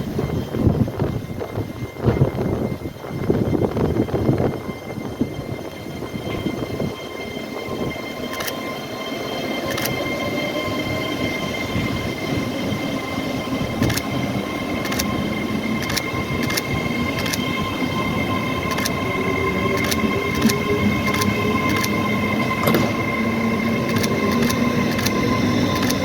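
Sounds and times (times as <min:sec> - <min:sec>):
train rumble and whine: 0:00.0 - 0:26.0
wheels clicking over rail joints: 0:09.6 - 0:26.0.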